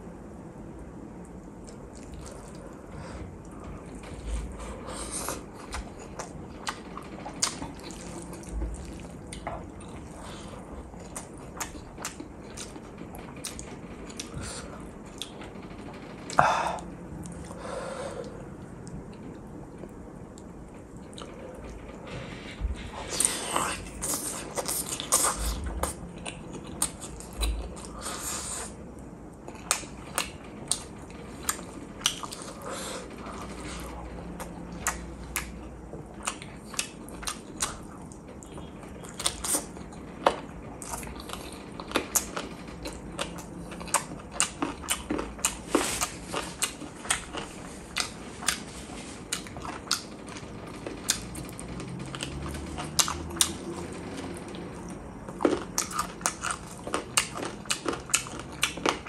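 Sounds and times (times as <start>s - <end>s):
chewing meat with mouth clicks: 5.1s - 14.4s, 29.1s - 59.0s.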